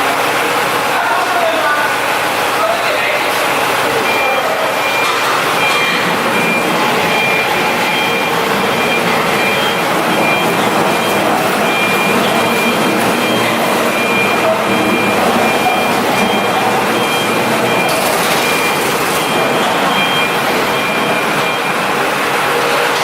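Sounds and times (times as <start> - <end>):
loud machine noise: 0.0 - 23.0
high beeping tone: 3.6 - 22.0.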